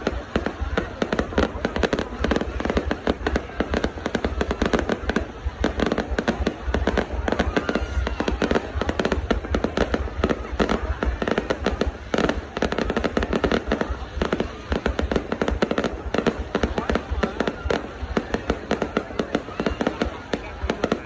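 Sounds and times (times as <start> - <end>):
fireworks cracking and banging: 0.0 - 21.0.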